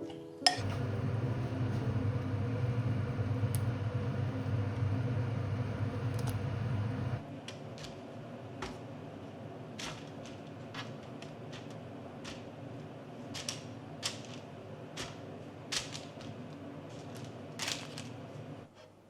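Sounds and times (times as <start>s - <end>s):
appliance motor humming: 0.6s - 7.2s.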